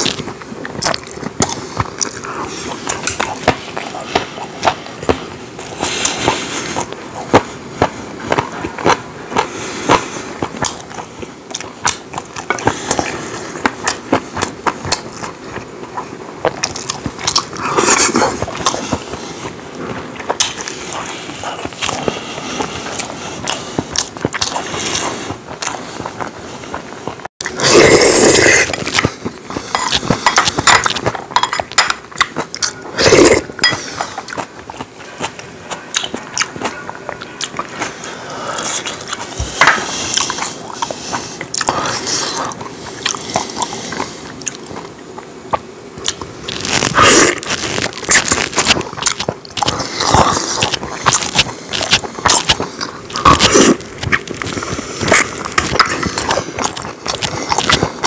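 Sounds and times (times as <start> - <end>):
wet chewing mouth clicks: 0.0 - 19.6, 20.2 - 58.0.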